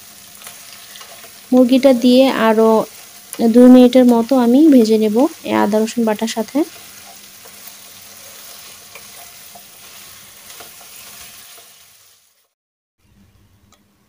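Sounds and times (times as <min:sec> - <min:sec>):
chicken sizzling in oil: 0:00.0 - 0:12.6
spatula scraping and tapping: 0:06.7 - 0:11.8.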